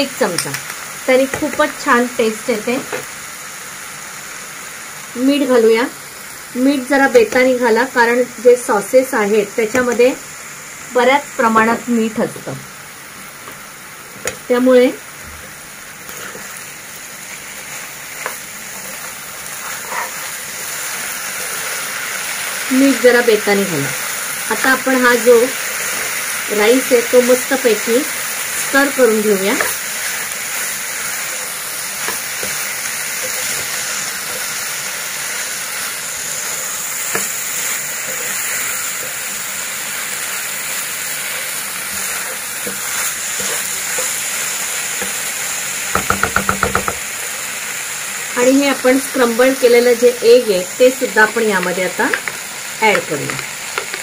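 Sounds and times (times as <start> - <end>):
food sizzling in a wok: 0.0 - 54.0
spatula scraping and tapping pan: 45.9 - 47.1, 52.1 - 54.0.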